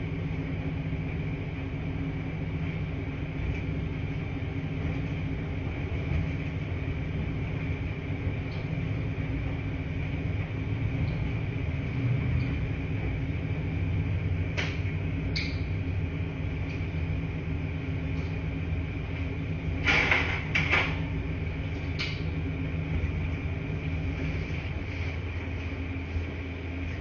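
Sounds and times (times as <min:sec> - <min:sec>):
laundry machines humming: 0:00.0 - 0:27.0.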